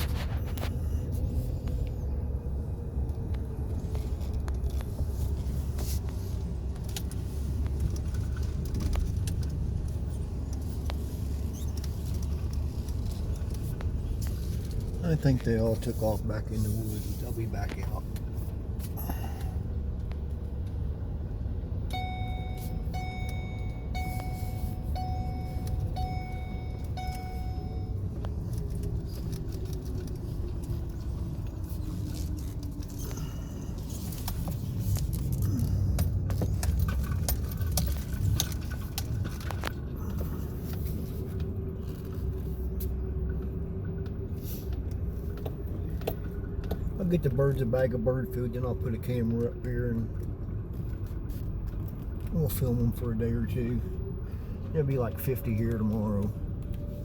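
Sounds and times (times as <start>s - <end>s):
vehicle engine low rumble: 0.0s - 57.0s
car warning chime beeps: 21.8s - 28.3s.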